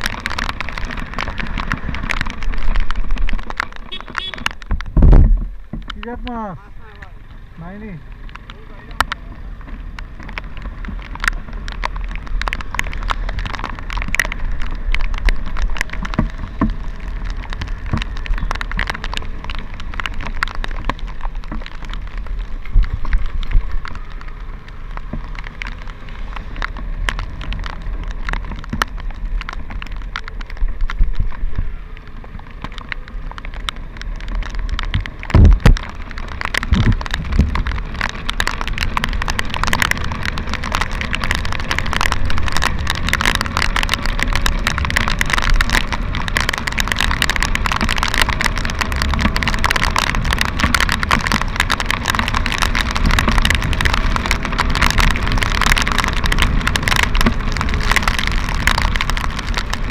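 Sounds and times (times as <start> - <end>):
rain and wind hiss: 0.0 - 59.9
raindrops clicking on camera: 0.0 - 59.9
loud low thumps: 4.1 - 5.8.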